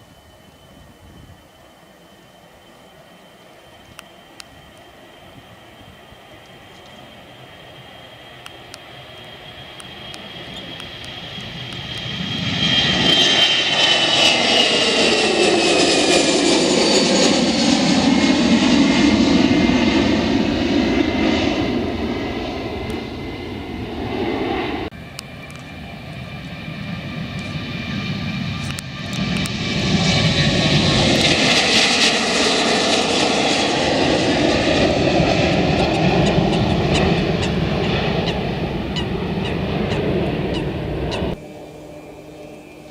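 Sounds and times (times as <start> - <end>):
jet airliner taking off: 0.0 - 42.9.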